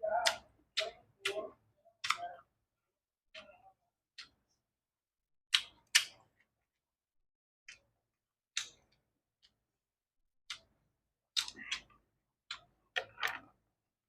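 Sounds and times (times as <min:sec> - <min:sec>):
crunching and smacking mouth sounds: 0:10.5 - 0:13.5.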